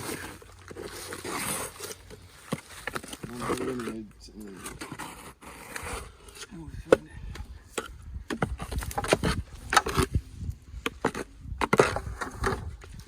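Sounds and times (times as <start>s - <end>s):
sharp knocks and thumps: 6.9s - 10.2s.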